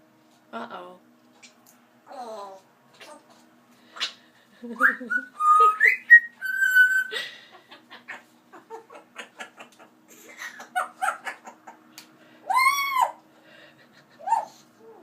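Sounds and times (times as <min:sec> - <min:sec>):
parrot whistling and chattering: 0:04.8 - 0:07.1.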